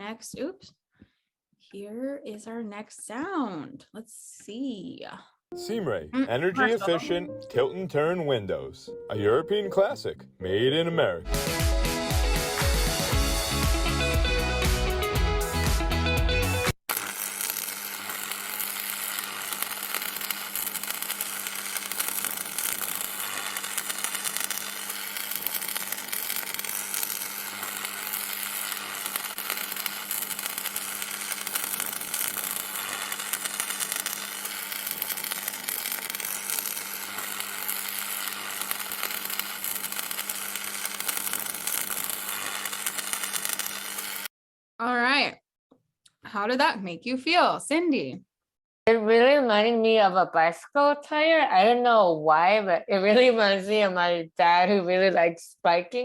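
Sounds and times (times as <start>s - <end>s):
electrical buzz and hiss: 15.5s - 44.3s.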